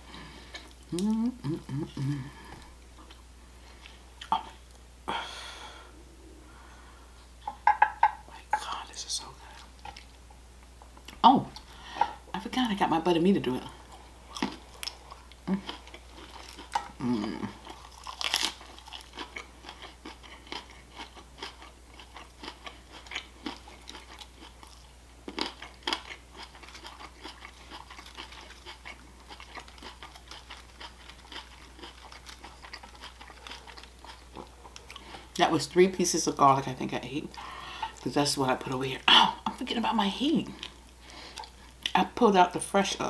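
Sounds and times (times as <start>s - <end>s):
person chewing crunchy food: 0.0s - 4.8s, 13.8s - 35.4s, 40.5s - 42.0s.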